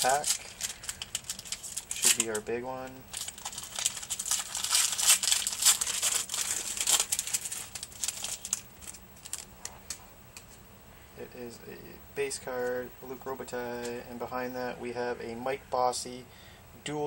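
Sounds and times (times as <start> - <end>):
card pack wrapper tearing: 0.0 - 2.4, 3.1 - 10.0
scattered wrapper clicks: 0.1 - 2.4.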